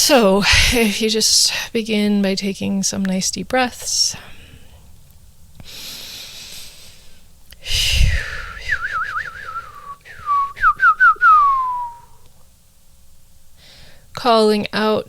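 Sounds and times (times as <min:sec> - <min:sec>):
person breathing into microphone: 0:05.6 - 0:08.6
person whistling: 0:07.8 - 0:12.2.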